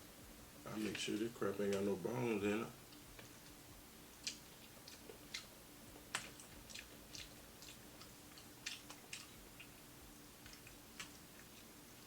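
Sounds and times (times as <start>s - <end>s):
faint steady hum: 0.0s - 12.0s
chewing with wet mouth clicks: 2.9s - 12.0s.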